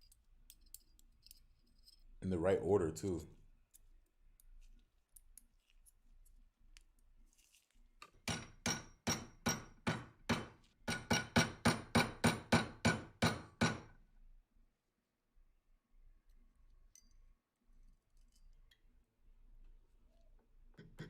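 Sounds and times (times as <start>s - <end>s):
hammer tapping on metal: 8.3s - 13.9s.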